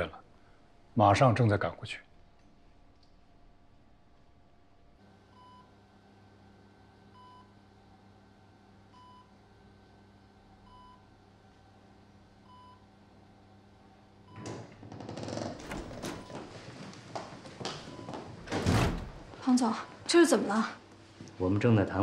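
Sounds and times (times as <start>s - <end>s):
faint steady hum: 0.0s - 14.8s
patient monitor beeping: 5.3s - 5.7s, 15.6s - 16.7s.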